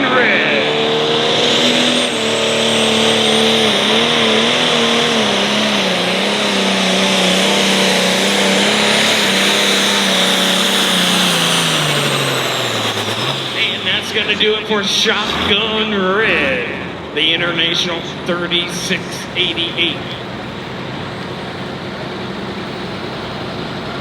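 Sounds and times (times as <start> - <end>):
turbo whine: 0.0 - 15.7
diesel engine running under load: 0.0 - 24.0.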